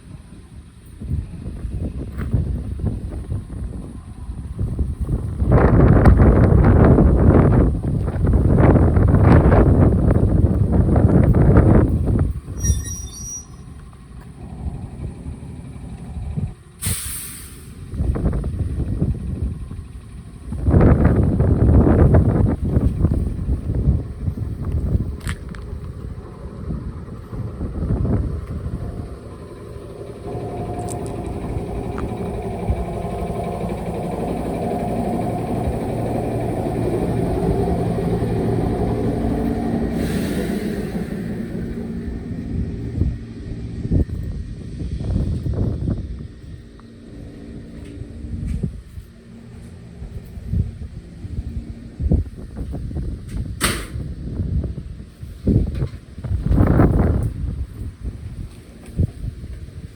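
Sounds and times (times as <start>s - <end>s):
electric train equipment hum: 0.0s - 59.9s
low rumble: 1.0s - 59.9s
train high-pitched squeal: 12.5s - 13.9s, 29.3s - 43.1s
air brakes hiss: 16.8s - 18.2s, 39.8s - 42.1s.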